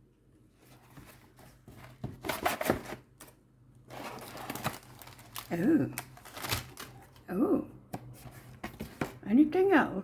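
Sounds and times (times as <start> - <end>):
packaging rustling: 0.7 - 7.2.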